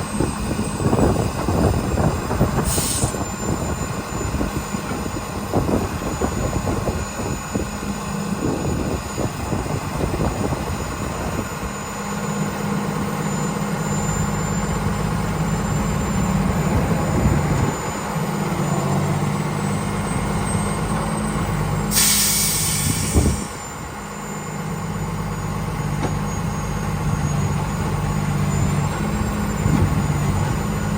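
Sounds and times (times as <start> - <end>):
truck diesel engine running: 0.0 - 30.9
air brake hiss: 2.6 - 3.2, 21.9 - 23.7.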